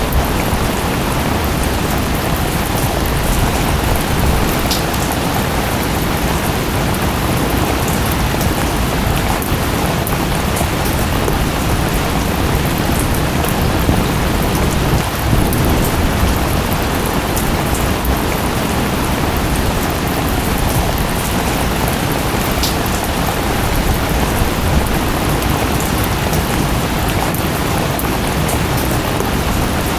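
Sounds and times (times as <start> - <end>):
rain drop ticks: 1.6 - 6.4, 19.5 - 29.4.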